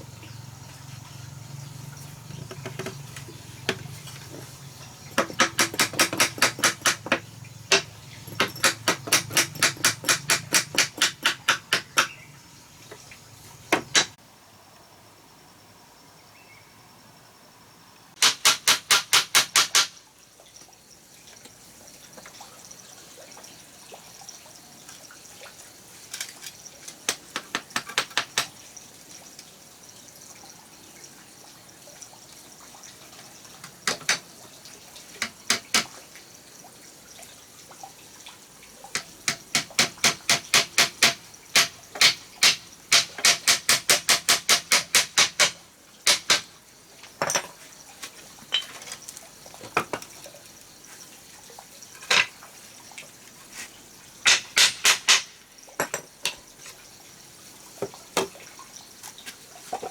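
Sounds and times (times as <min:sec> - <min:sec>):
rapid sharp knocks: 0:05.1 - 0:12.2, 0:13.7 - 0:14.2, 0:18.2 - 0:20.0, 0:39.3 - 0:46.5, 0:54.3 - 0:55.4.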